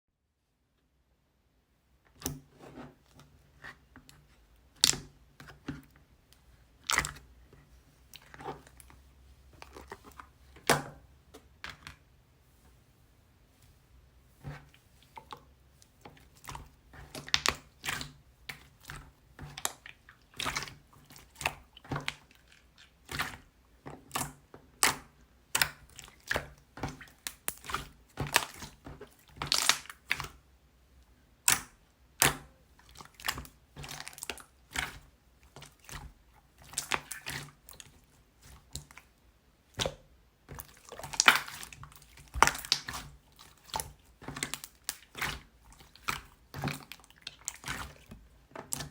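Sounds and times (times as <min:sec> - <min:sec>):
slime squished by hand: 0:15.9 - 0:30.4, 0:31.4 - 0:39.1, 0:39.7 - 0:48.9.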